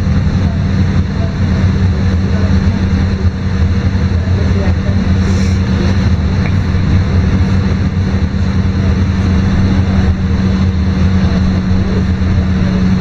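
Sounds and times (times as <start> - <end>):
bus diesel engine droning: 0.0 - 13.0
road and cabin noise: 0.0 - 13.0.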